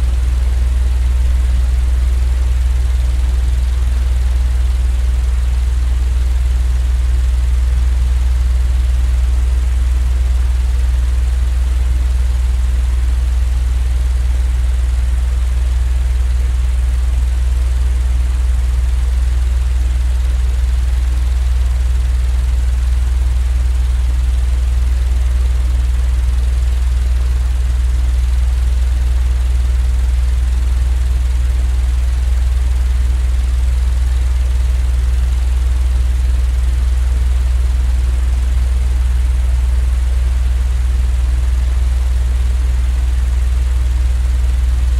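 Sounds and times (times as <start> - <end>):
low machine hum: 0.0 - 13.2, 38.6 - 44.9.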